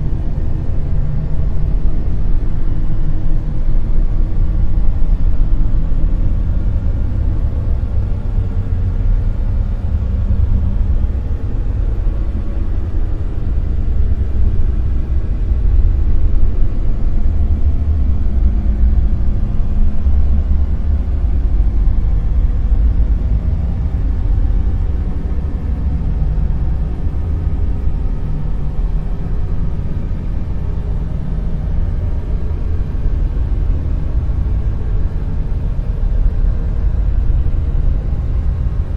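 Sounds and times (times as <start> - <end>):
deep rumbling noise: 0.0 - 38.9.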